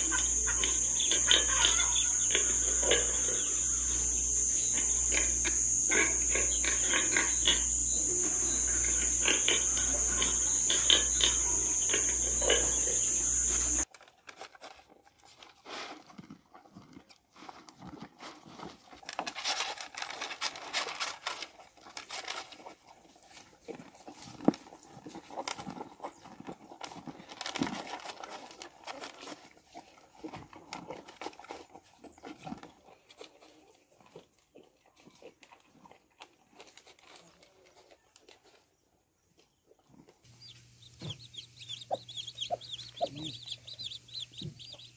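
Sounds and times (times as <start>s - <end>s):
insect chorus: 0.0s - 13.8s, 40.4s - 44.9s
animal crunching feed pellets: 0.0s - 44.9s.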